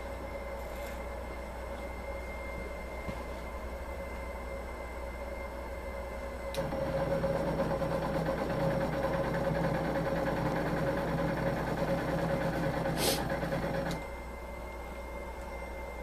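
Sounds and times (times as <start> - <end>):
embroidery machine stitching: 6.6 - 14.0
short hiss: 13.0 - 13.3.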